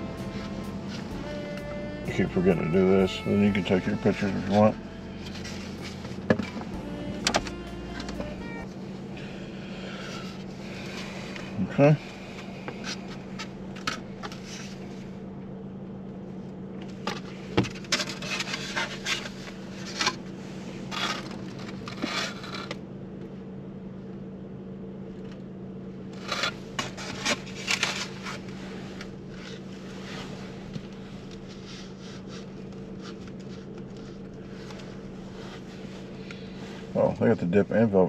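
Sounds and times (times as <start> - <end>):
car engine idling: 0.0 - 38.0
rustling and clicking of handling: 26.2 - 36.8.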